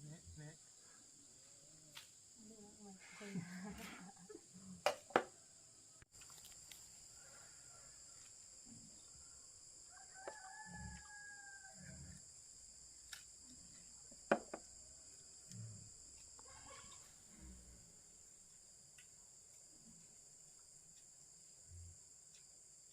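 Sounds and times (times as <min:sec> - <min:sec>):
crickets buzzing: 0:00.0 - 0:22.9
rooster crowing: 0:09.8 - 0:12.1
sharp knocks and thuds: 0:14.3 - 0:14.7.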